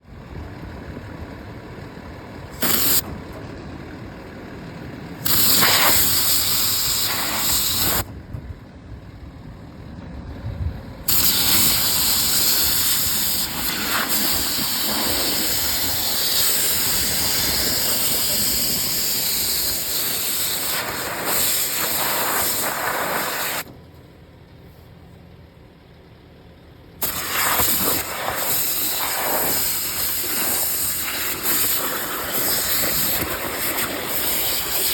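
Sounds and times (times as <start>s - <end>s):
truck engine running: 0.0s - 34.9s
high-pressure water jet spraying: 2.6s - 3.0s, 5.2s - 8.0s, 11.1s - 23.6s, 27.0s - 34.9s.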